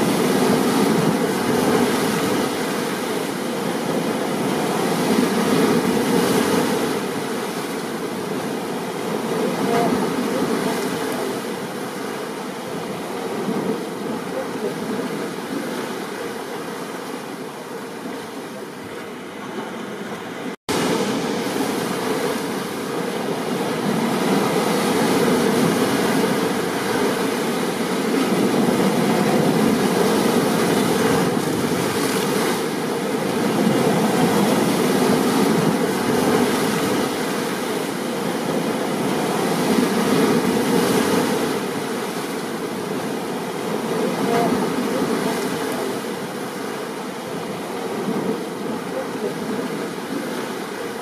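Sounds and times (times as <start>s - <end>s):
ocean surf breaking: 0.0s - 51.0s.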